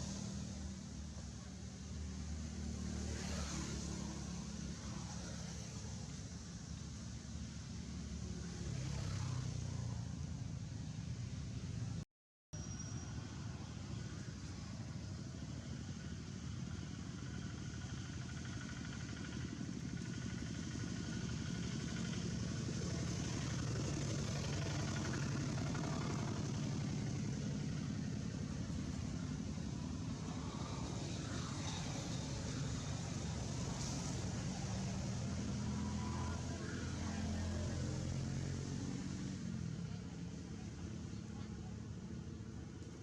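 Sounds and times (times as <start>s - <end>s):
vehicle engine rumbling: 12.6s - 43.0s.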